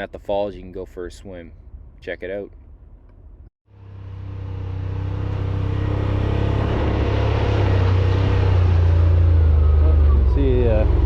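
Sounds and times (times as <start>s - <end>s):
vehicle engine running: 3.7s - 11.0s.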